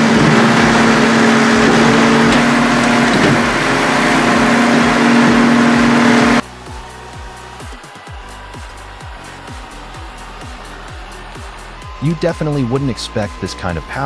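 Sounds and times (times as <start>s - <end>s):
circular saw cutting logs: 0.0s - 6.4s
engine hum: 0.0s - 7.5s.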